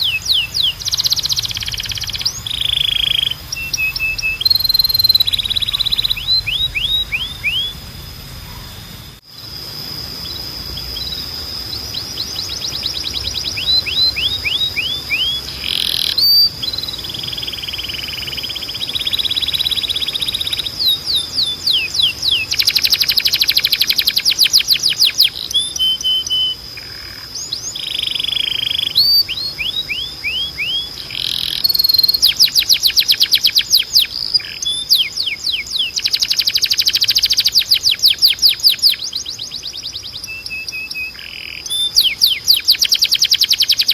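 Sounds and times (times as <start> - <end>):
steady high tone: 0.0 - 32.3
canary singing: 0.0 - 43.9.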